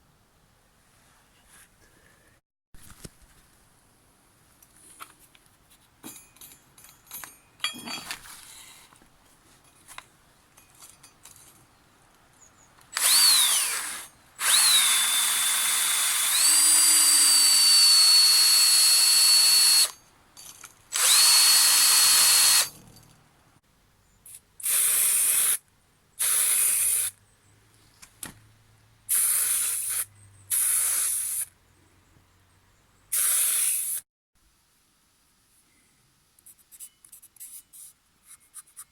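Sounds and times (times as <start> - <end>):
power drill motor whine: 13.0 - 20.0, 20.9 - 22.7.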